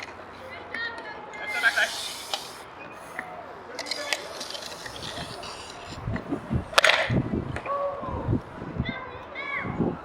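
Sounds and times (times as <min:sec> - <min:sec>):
spectators chattering: 0:00.0 - 0:07.0.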